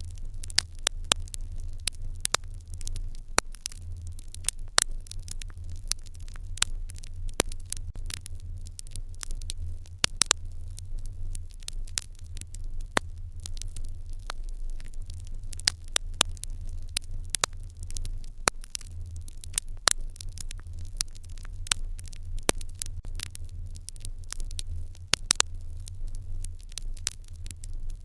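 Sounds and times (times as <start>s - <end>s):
low fire rumble: 0.0s - 28.0s
wood fire crackling and popping: 0.0s - 28.0s.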